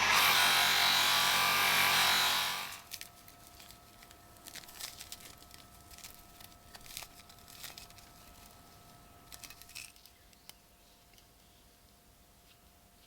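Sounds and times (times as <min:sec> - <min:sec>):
faint steady hum: 0:01.9 - 0:13.0.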